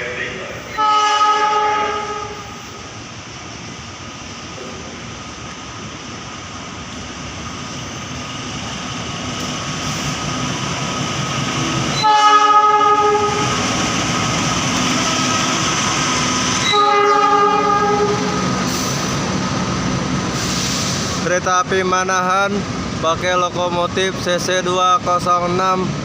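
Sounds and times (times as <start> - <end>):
train approaching: 0.0 - 26.0
multi-tone train horn: 0.7 - 2.7, 11.9 - 13.6, 16.6 - 18.5.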